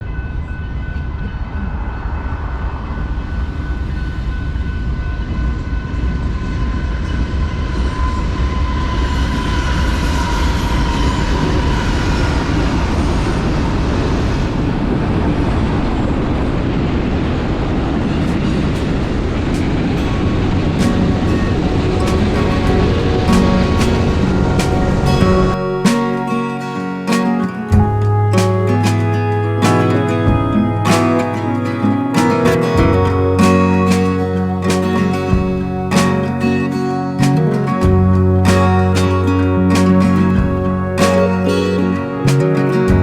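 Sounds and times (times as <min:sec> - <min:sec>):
freight train rumbling: 0:00.0 - 0:43.0
thin high tones: 0:18.3 - 0:42.8.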